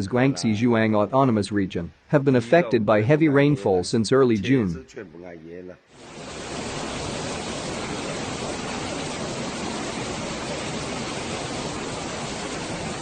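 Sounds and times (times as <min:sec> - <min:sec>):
water rushing: 0:06.0 - 0:13.0.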